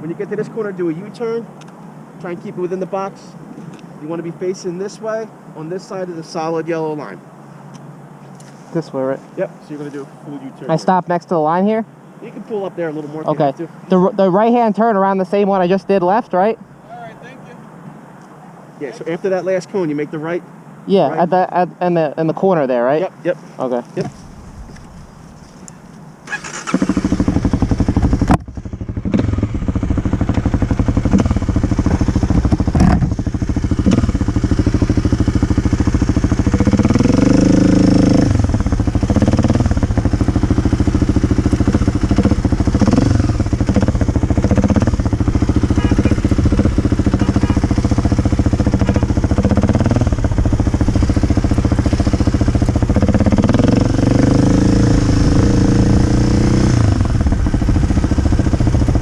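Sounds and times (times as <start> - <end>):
motorcycle engine revving: 26.3 - 59.0.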